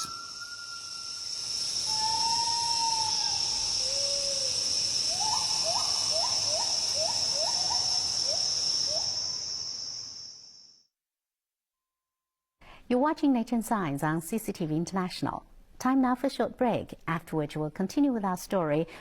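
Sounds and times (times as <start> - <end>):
insects buzzing: 0.0 - 10.8
gibbon calling: 1.9 - 9.1.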